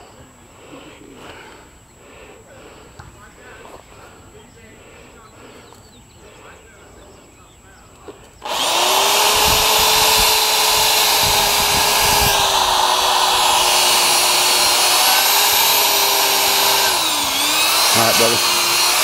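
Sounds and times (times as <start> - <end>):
power drill motor whine: 8.4 - 19.0.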